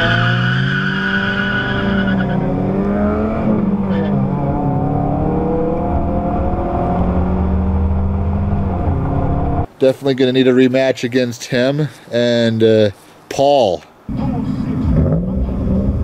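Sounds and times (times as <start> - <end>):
vehicle engine accelerating: 0.0 - 9.7, 14.6 - 16.0.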